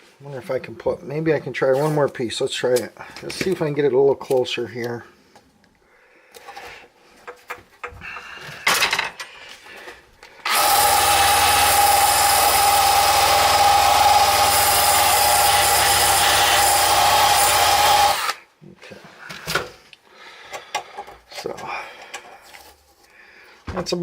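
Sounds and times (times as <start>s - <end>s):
power tool whining: 10.4s - 18.4s.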